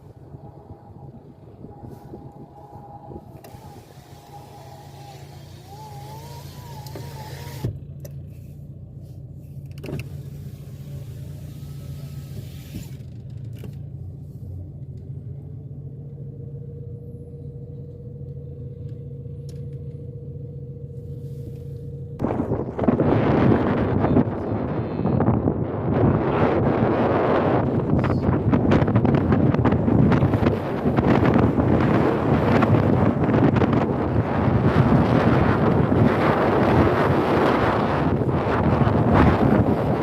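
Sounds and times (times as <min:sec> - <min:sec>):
wind noise on microphone: 0:00.0 - 0:07.8, 0:09.9 - 0:13.0, 0:22.2 - 0:40.0
faint steady whine: 0:00.0 - 0:13.2, 0:13.8 - 0:26.1
motor vehicle drone: 0:00.0 - 0:40.0.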